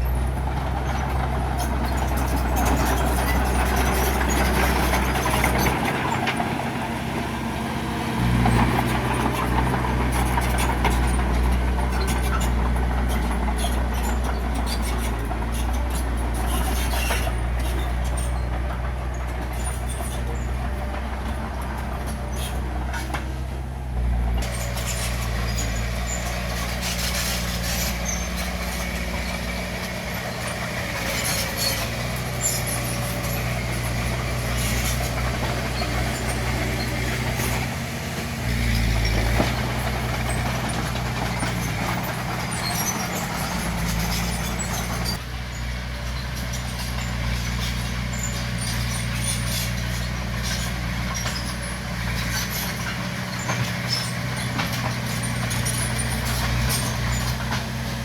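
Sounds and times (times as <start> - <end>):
bulldozer diesel engine under load: 0.0 - 58.0
metallic clanks and rattles: 24.3 - 45.2.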